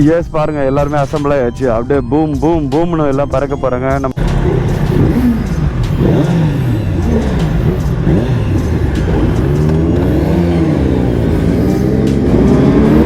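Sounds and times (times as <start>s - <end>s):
motorcycle engines revving: 4.2s - 13.0s.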